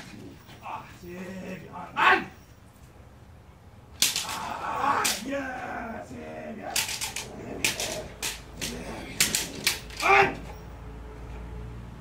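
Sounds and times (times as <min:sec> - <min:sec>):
sharp cracks or slaps: 0:04.0 - 0:05.3, 0:06.7 - 0:10.4.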